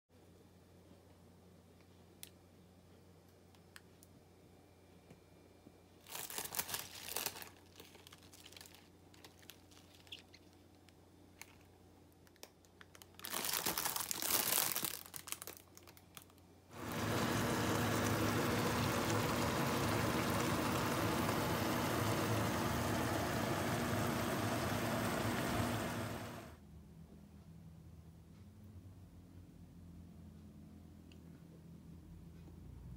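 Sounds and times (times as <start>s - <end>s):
crinkling and rustling: 6.0s - 22.7s.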